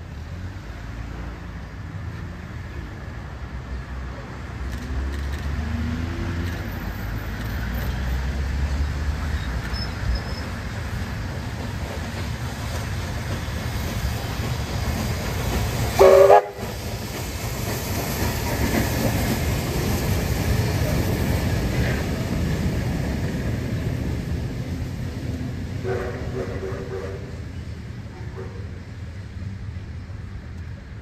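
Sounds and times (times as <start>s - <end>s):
train rumbling: 0.0s - 31.0s
short loud train toot: 16.0s - 16.8s, 25.8s - 27.4s.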